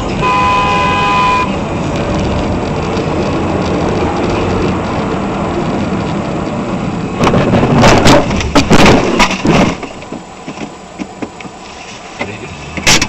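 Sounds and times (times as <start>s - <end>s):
vehicle rumble: 0.0s - 13.0s
loud crunching impacts: 7.2s - 10.2s.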